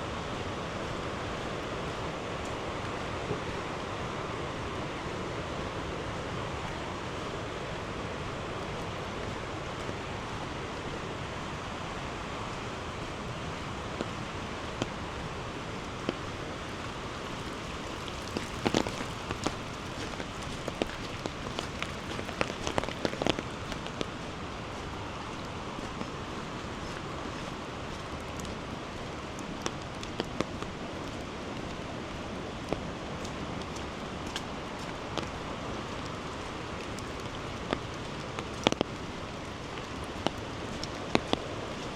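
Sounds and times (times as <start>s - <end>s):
steady rain: 0.0s - 41.9s
sharp raindrop taps: 16.8s - 24.2s, 32.6s - 41.5s.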